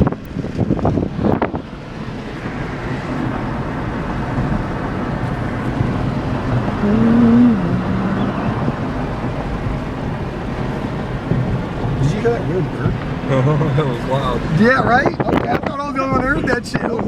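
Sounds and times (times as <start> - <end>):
road and wind noise in car: 0.0 - 17.0
low wavering call: 6.6 - 9.5.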